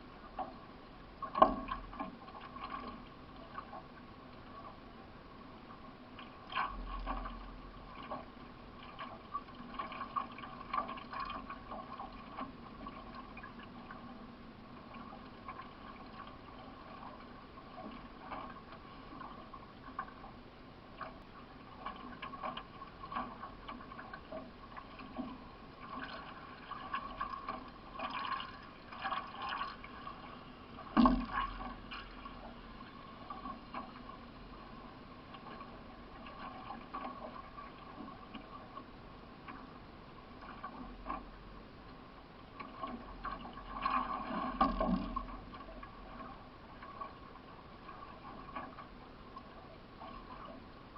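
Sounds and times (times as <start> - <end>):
faint steady hum: 0.0 - 50.9
paddle strokes in water: 0.0 - 50.9
water dripping off paddle: 21.0 - 34.2.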